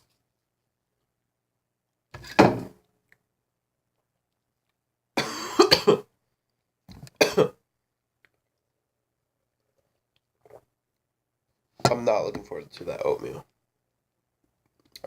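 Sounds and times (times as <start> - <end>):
person coughing: 5.2 - 6.1, 7.2 - 7.6.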